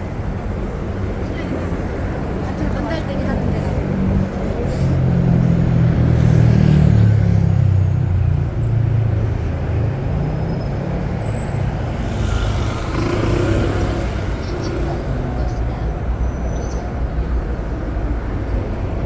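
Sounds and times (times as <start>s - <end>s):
street traffic: 0.0s - 19.0s
large vehicle engine running: 11.0s - 19.0s.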